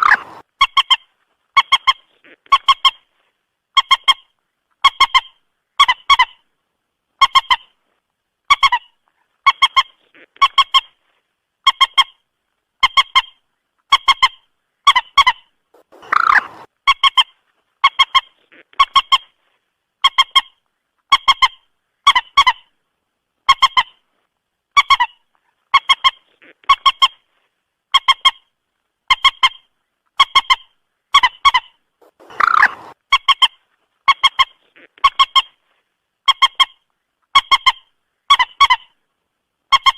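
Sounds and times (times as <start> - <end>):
harsh moorhen call: 0.0 - 1.0, 12.9 - 17.2, 30.2 - 35.6
moorhen clucking call: 0.0 - 3.1, 12.8 - 19.4, 29.1 - 35.6.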